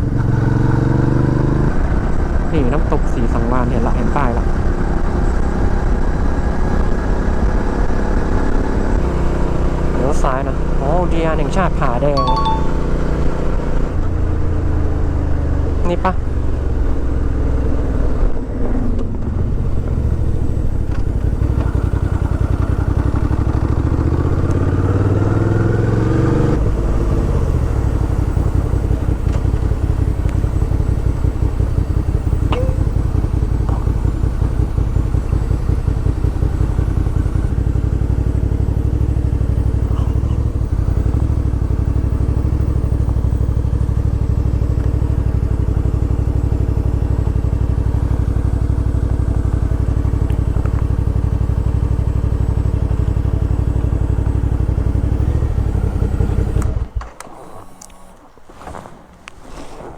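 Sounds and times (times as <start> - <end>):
motorcycle engine revving: 0.0 - 2.5, 14.0 - 57.2.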